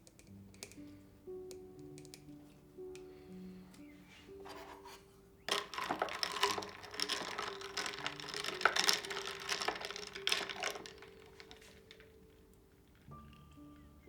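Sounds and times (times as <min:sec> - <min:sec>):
small hard objects clicking: 0:00.0 - 0:02.3, 0:05.5 - 0:14.0
faint background music: 0:00.0 - 0:14.0.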